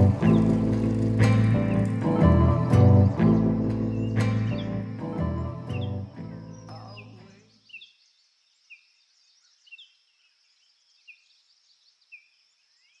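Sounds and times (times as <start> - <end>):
background music: 0.0 - 7.3
distant birdsong: 0.0 - 13.0.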